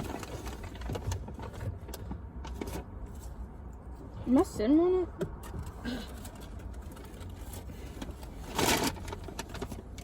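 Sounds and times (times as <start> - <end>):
soft rustling and handling: 0.0 - 4.4.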